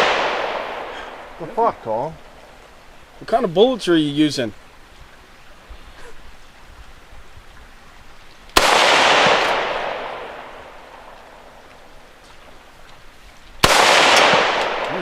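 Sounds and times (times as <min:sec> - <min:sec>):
rifle shot echoing: 0:00.0 - 0:01.7, 0:08.6 - 0:11.5, 0:13.6 - 0:15.0.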